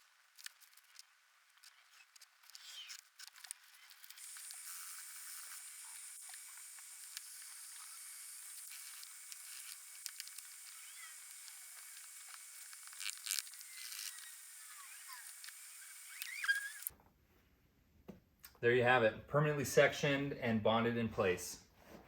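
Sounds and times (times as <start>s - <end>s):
steamer hissing: 4.2s - 16.9s.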